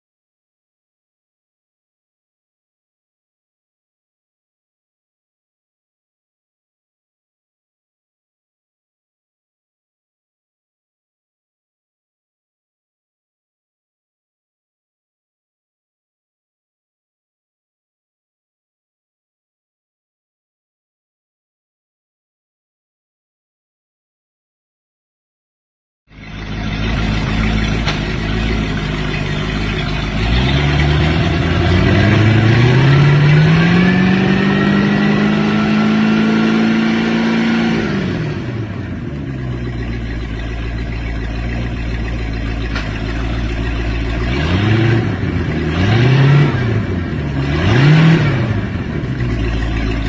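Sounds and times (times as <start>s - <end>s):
boat engine revving: 26.1s - 50.0s.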